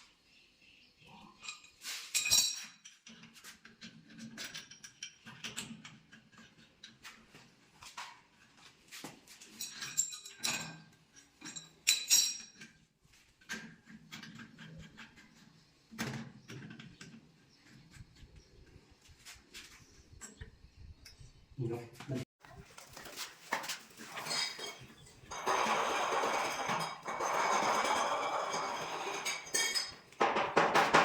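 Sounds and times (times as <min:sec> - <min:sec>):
metallic clinks and knocks: 0:24.1 - 0:31.0.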